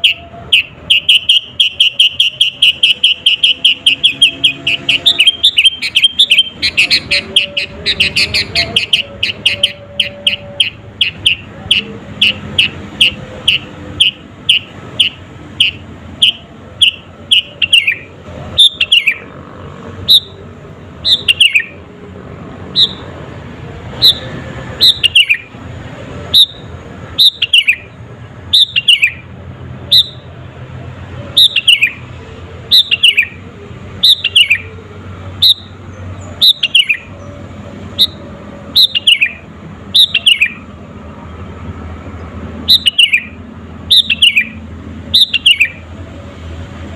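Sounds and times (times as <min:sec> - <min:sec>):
bird singing falling whistled notes: 0:42.7 - 0:43.3.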